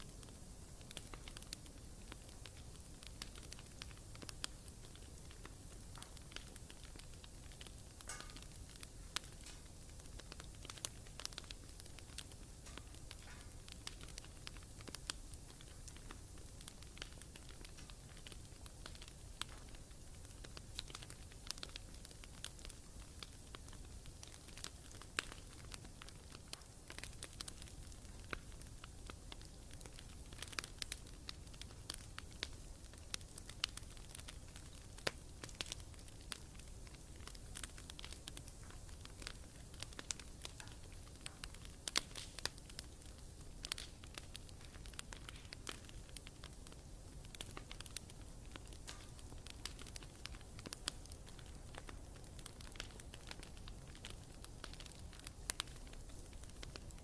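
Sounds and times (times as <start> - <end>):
campfire crackling: 0.0 - 57.0.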